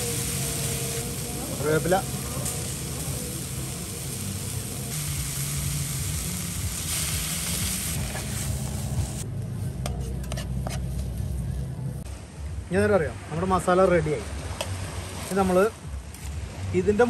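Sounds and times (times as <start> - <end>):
food sizzling in a frying pan: 0.0 - 9.2
steady low rumble: 0.0 - 12.9
spatula stirring: 9.9 - 11.0.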